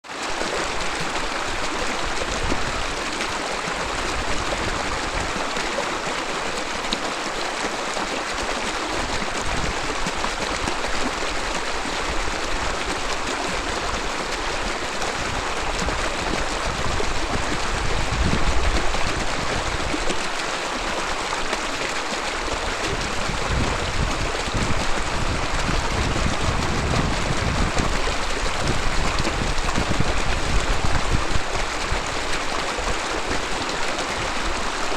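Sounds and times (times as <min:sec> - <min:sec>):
river babbling over rocks: 0:00.0 - 0:34.9.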